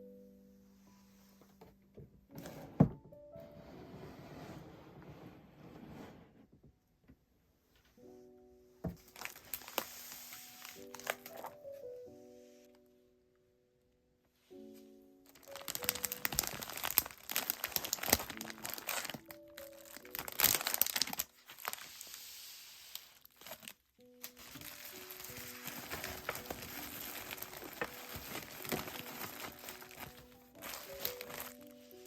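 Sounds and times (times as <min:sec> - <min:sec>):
soft background music: 0:00.0 - 0:32.0
paper crinkling and rustling: 0:08.9 - 0:11.9, 0:15.3 - 0:32.0.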